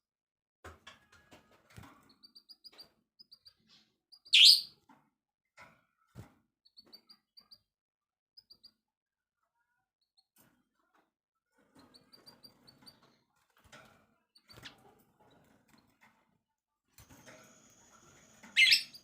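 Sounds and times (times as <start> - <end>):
songbird chirping: 2.1 - 4.8, 17.4 - 19.0.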